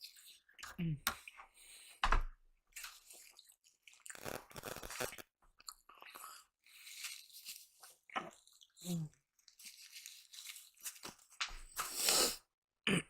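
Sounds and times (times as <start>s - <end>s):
person chewing food: 2.7s - 12.4s.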